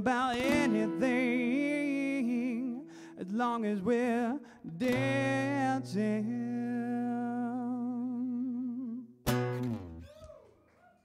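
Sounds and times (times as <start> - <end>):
man singing with vibrato: 0.0 - 9.2
guitar chord ringing: 9.3 - 10.0.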